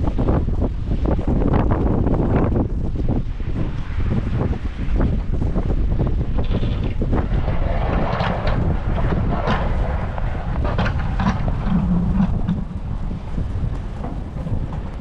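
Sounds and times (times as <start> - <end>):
blizzard wind buffeting microphone: 0.0 - 15.0.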